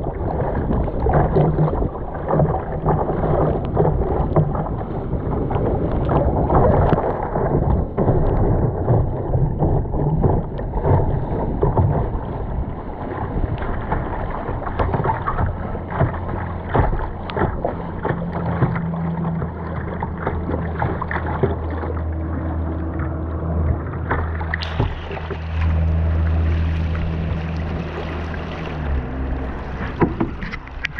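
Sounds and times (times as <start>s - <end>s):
short splashes: 0.0s - 30.9s
river water rushing: 15.8s - 30.9s
knocks on kayak: 29.8s - 30.6s.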